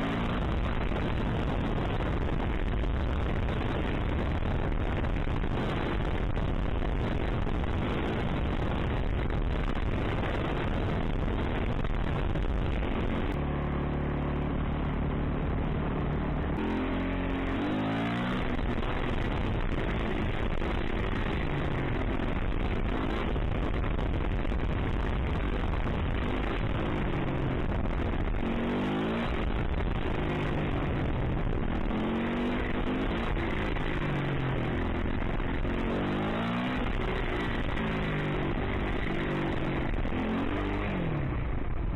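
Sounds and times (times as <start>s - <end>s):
steady rush of noise: 0.0s - 41.9s
wind on microphone: 0.0s - 41.9s
dirt bike engine revving: 16.6s - 18.8s.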